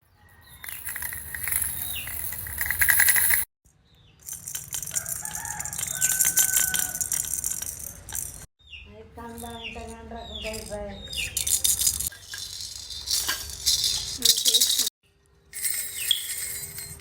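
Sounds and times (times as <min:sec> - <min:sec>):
baby rattles clattering: 0:00.6 - 0:03.5, 0:04.2 - 0:08.5, 0:10.4 - 0:14.9, 0:15.6 - 0:17.0.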